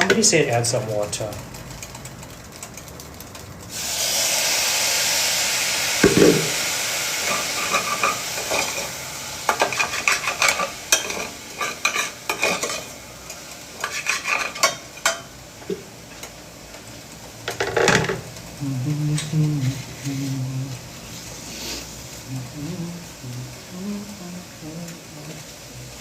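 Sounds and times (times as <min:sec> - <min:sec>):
stew sizzling in a pot: 0:03.6 - 0:26.0
thump: 0:06.0 - 0:06.6
spoon scraping a pot: 0:07.3 - 0:08.9, 0:09.5 - 0:12.9, 0:13.8 - 0:15.2.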